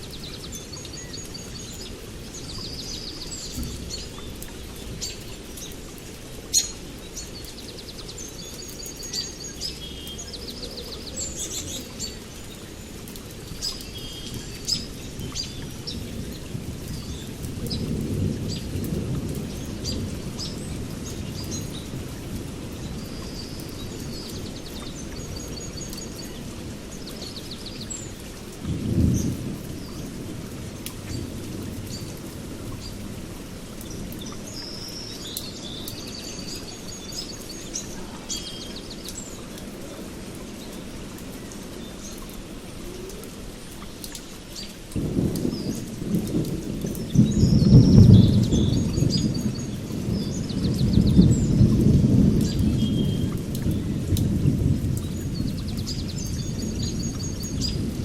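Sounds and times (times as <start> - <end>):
birds chirping and trilling: 0.0 - 22.0, 33.8 - 42.4, 43.0 - 54.1
steady rain: 0.0 - 58.0
thunder rumbling: 13.0 - 27.0, 28.6 - 34.5, 44.9 - 58.0.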